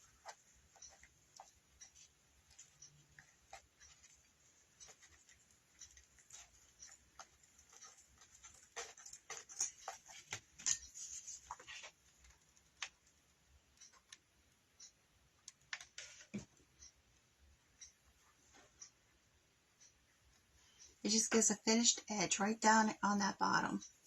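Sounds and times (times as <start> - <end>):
fabric strips rustling and clicking: 0.0 - 13.2.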